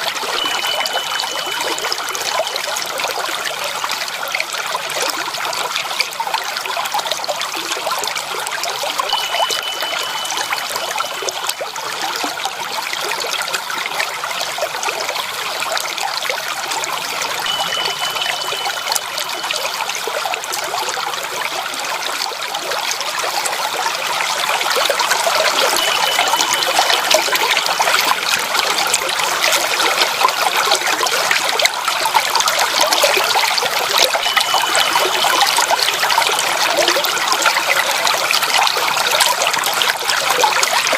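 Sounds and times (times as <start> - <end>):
water trickling and splashing: 0.0 - 40.9
faint high tone: 0.1 - 3.1, 8.8 - 11.6, 17.2 - 20.2, 25.1 - 28.2, 33.8 - 37.2.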